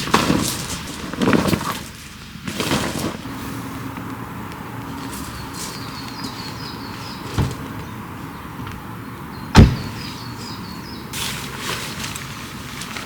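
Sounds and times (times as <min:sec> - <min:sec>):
dull thumps: 0:07.4 - 0:07.9, 0:09.6 - 0:10.0.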